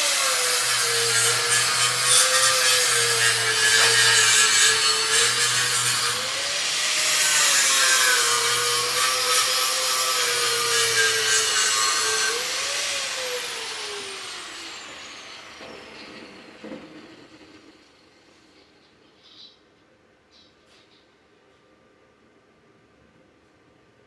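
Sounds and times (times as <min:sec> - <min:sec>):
electric power tool working metal: 0:00.0 - 0:18.0.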